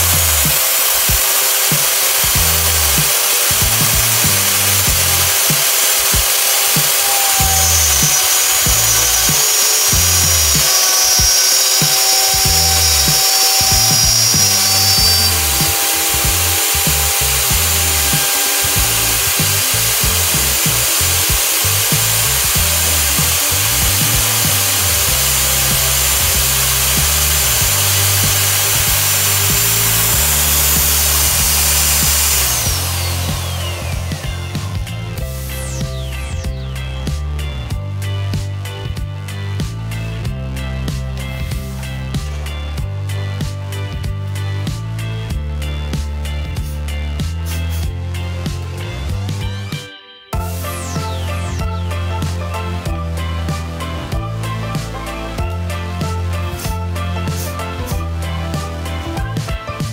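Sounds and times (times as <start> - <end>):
motor winding down: 0.0 - 37.1, 50.4 - 58.8
router cutting wood whine: 0.0 - 37.1, 50.4 - 59.9.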